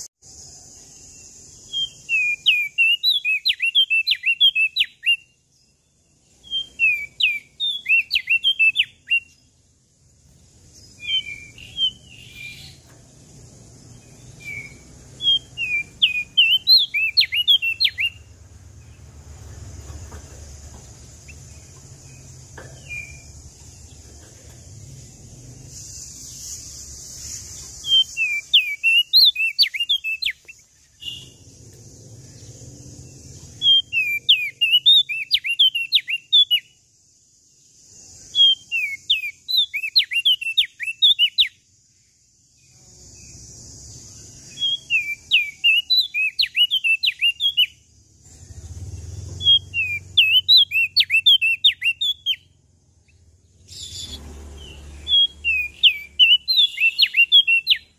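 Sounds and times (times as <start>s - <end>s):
warbler singing chirps: 0.0s - 57.9s
steady high hiss: 8.8s - 34.0s.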